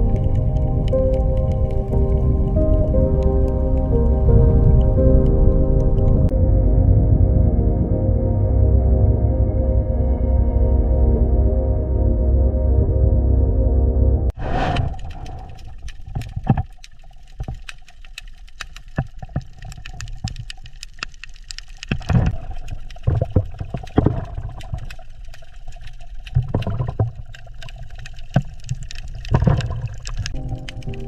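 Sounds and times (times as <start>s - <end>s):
water gurgling and bubbling: 0.0s - 6.3s, 14.3s - 17.7s, 21.9s - 31.0s.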